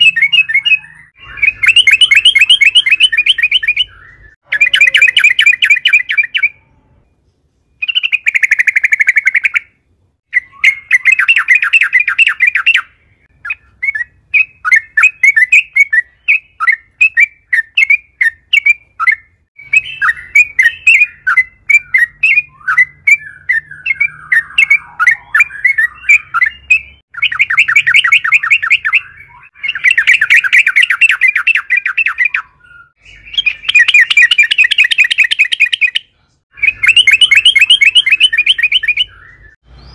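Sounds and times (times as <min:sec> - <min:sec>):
bird chattering trills: 0:00.0 - 0:06.7, 0:36.6 - 0:39.5
bird chirping notes: 0:00.0 - 0:39.9.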